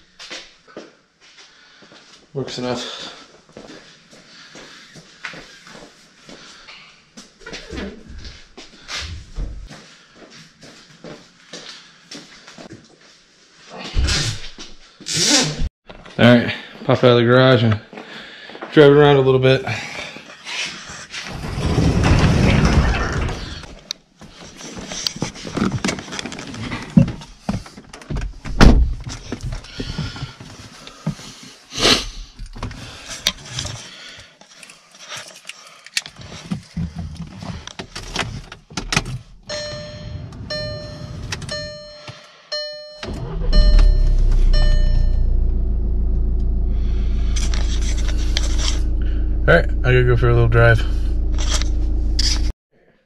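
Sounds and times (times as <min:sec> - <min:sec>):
car warning chime: 0:39.5 - 0:45.9
car engine starting and idling: 0:43.0 - 0:52.5.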